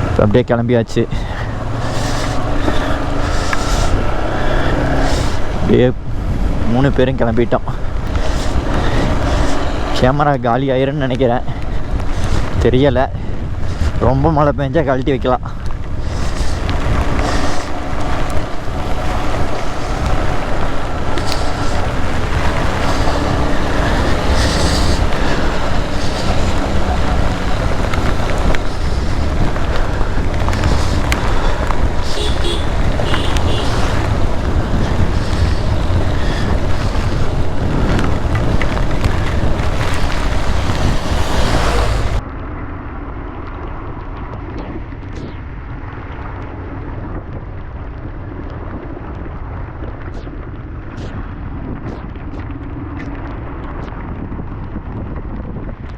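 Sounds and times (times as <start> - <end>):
wind rushing over microphone: 0.0 - 55.9
motorcycle engine running: 15.9 - 42.2.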